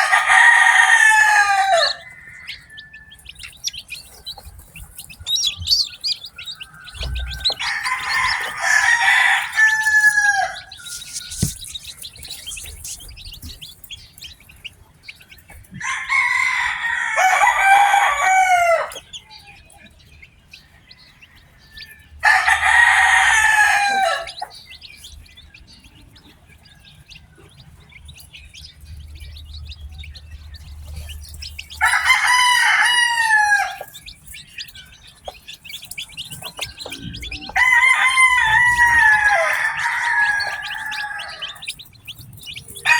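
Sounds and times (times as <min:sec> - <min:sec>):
rooster crowing: 0:00.0 - 0:04.4, 0:05.4 - 0:12.0, 0:15.8 - 0:19.4, 0:21.0 - 0:24.6, 0:31.7 - 0:34.0, 0:36.4 - 0:41.8
chicks peeping: 0:00.0 - 0:42.9.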